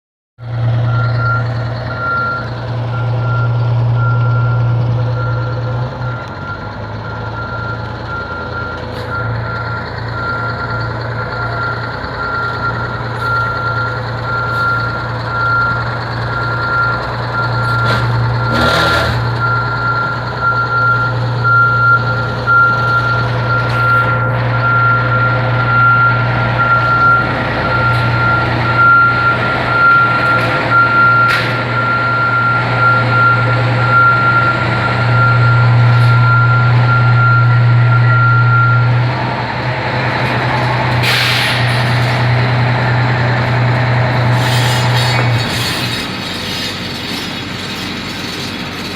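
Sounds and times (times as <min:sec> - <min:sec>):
diesel engine running: 0:00.4 - 0:48.9
reversing alarm beeps: 0:00.8 - 0:39.0.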